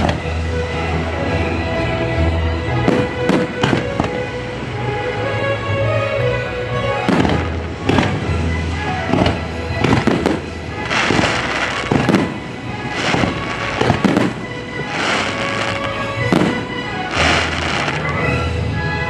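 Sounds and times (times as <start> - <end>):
fireworks bangs: 0.0 - 0.4, 2.8 - 4.7, 6.9 - 18.2
fireworks crackling: 0.0 - 19.0
music soundtrack: 0.0 - 19.0.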